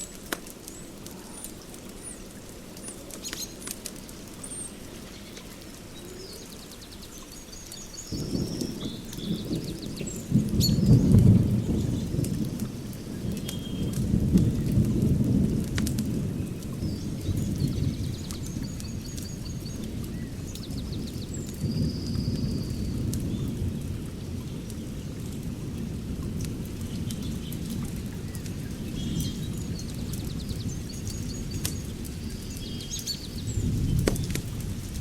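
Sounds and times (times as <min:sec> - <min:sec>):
sharp crackling clicks: 0:00.0 - 0:04.6, 0:12.2 - 0:16.8, 0:31.1 - 0:32.6, 0:33.9 - 0:34.7.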